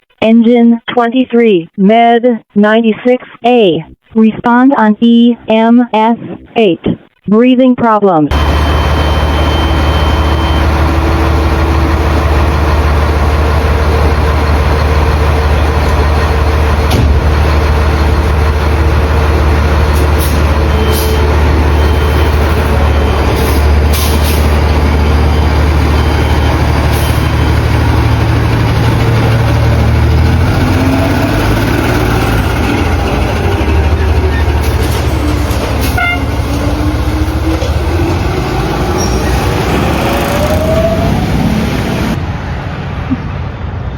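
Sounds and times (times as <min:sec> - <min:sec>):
diesel engine running: 0:08.3 - 0:43.9.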